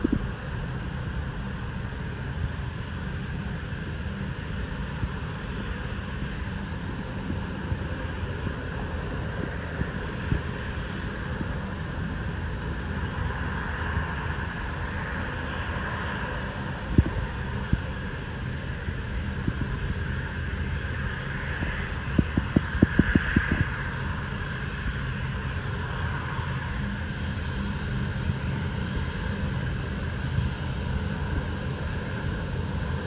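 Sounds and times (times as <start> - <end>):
wind buffeting microphone: 0.0 - 4.0, 6.4 - 14.8, 15.7 - 25.4
jet engines running: 0.0 - 33.0.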